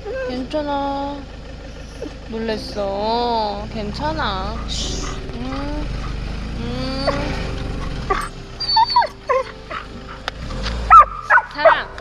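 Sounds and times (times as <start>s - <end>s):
dog whimpering and yipping: 0.0s - 0.4s, 1.8s - 2.2s, 4.5s - 6.2s, 6.9s - 10.2s
vehicle rumble with rising whine: 0.0s - 12.0s.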